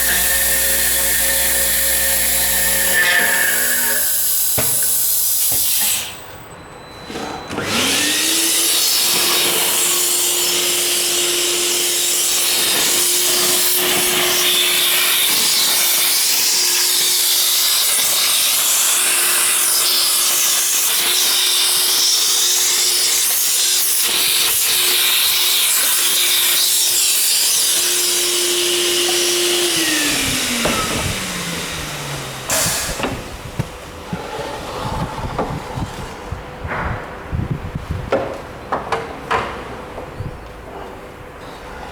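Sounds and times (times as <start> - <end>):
router spindle motor whine: 0.0 - 4.6, 27.6 - 33.6
hissing cutting noise: 0.0 - 6.2.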